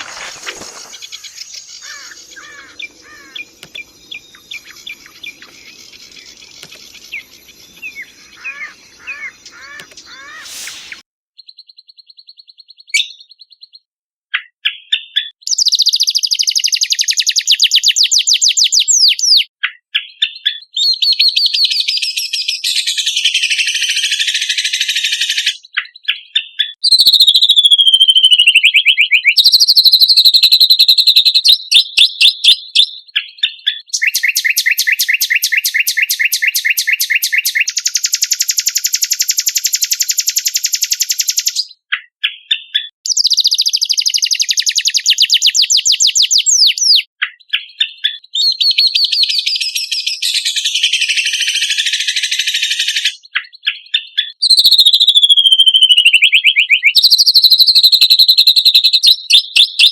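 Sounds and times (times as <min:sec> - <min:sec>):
songbirds chirping and trilling: 0:00.0 - 0:17.4, 0:31.2 - 0:59.9.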